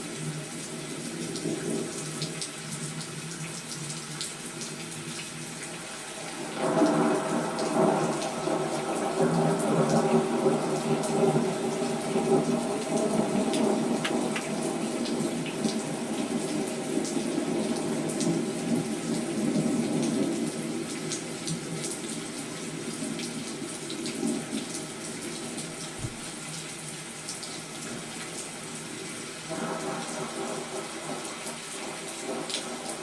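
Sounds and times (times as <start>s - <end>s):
steady rain falling: 0.0s - 33.0s
raindrops ticking: 12.3s - 19.2s.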